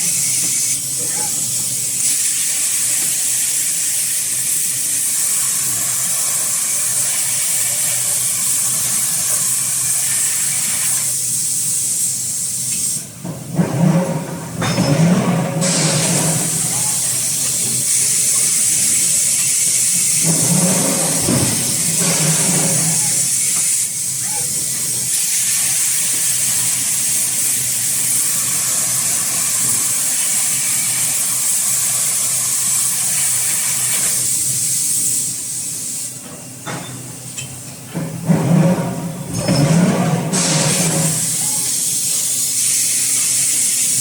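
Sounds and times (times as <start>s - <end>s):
loud machine noise: 13.2s - 34.0s, 37.9s - 42.5s
compressed air hissing: 15.6s - 36.2s, 40.3s - 44.0s.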